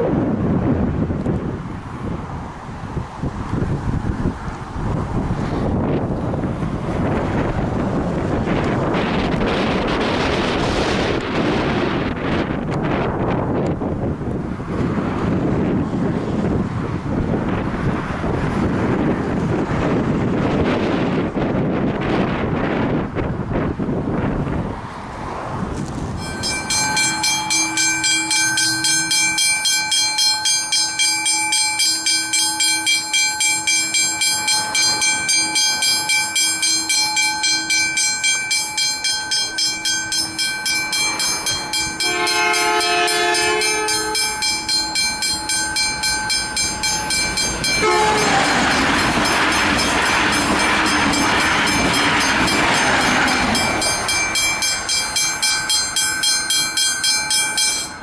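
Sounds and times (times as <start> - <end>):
passing train rumble: 0.0 - 58.0
level-crossing bell ringing: 26.2 - 58.0
train horn chord: 41.2 - 45.5, 47.4 - 53.7.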